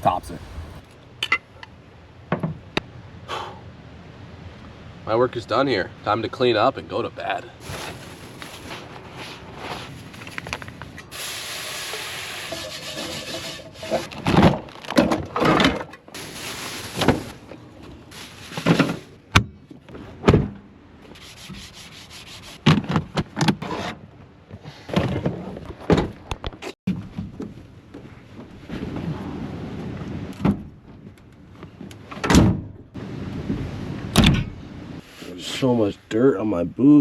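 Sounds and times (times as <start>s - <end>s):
steady hiss: 11.0s - 13.7s, 16.1s - 17.4s
scrubbing and wiping strokes: 11.6s - 14.2s, 21.1s - 22.6s.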